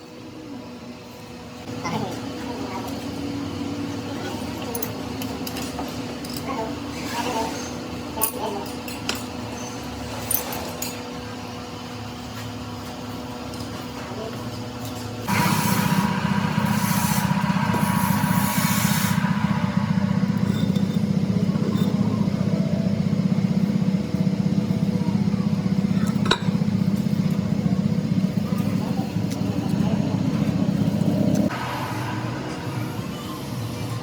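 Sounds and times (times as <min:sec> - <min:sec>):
motor running with low pulsing: 0:00.3 - 0:34.0
hiss: 0:15.3 - 0:21.0
low steady hum: 0:15.3 - 0:34.0.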